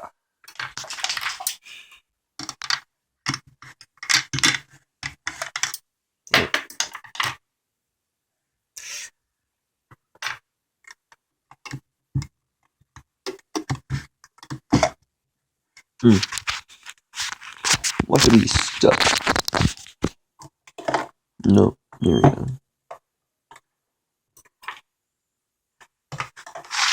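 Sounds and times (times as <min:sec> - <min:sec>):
handling noises scraping and clicking: 0:00.4 - 0:01.7, 0:15.8 - 0:21.2, 0:25.8 - 0:26.9.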